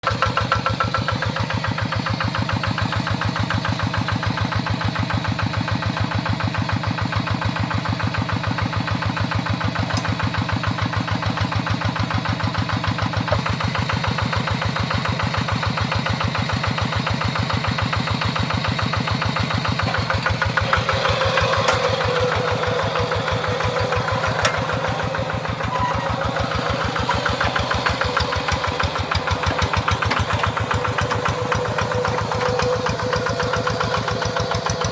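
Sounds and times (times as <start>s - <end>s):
tractor engine running: 0.0s - 34.9s
harsh clatter with sharp clicks: 19.8s - 25.8s.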